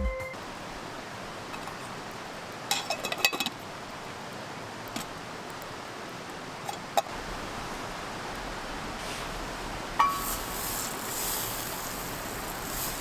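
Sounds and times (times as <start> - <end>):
steady hiss: 0.4 - 13.0
metal cookware clinking: 10.0 - 10.4.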